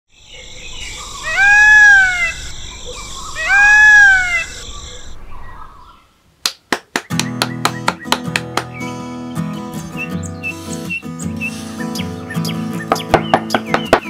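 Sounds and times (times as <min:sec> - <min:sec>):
animal calling: 0:00.5 - 0:06.1.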